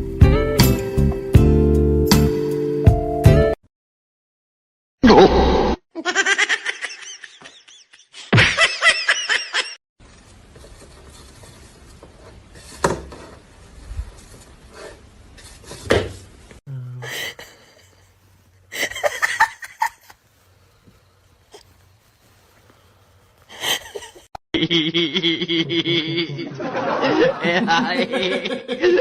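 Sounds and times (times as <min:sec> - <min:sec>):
person laughing: 0:06.0 - 0:09.8, 0:17.0 - 0:18.1, 0:18.7 - 0:20.2, 0:23.5 - 0:29.0.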